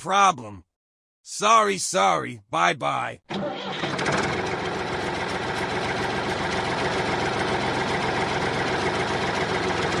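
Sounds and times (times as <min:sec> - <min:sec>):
tractor engine idling: 0:03.4 - 0:10.0.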